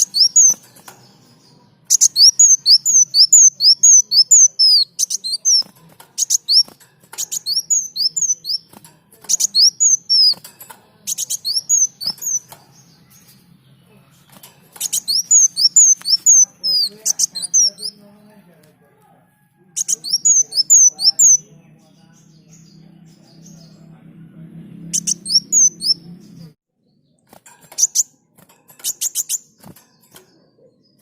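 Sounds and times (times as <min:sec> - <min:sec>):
sharp ticking bird notes: 0:00.0 - 0:18.0, 0:19.8 - 0:23.9, 0:24.7 - 0:31.0
sunbird singing: 0:00.0 - 0:18.6, 0:19.6 - 0:31.0.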